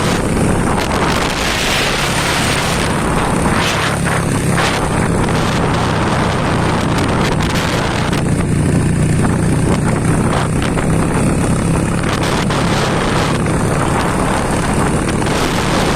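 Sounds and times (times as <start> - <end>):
vehicle engine running: 0.0 - 15.9
wind and road noise: 0.0 - 15.9.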